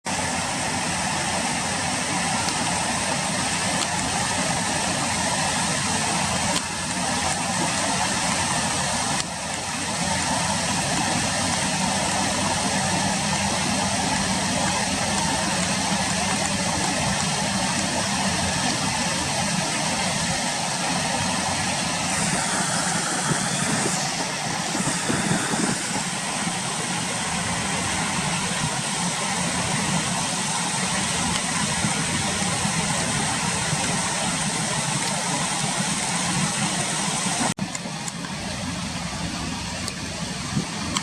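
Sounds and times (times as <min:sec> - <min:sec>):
steady rushing noise: 0:00.1 - 0:41.0.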